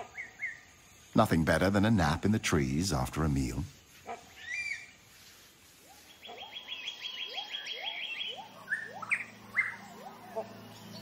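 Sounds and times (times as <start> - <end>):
bird chirp: 0.0 - 2.2, 3.7 - 11.0
short rising lower bird calls: 4.3 - 11.0.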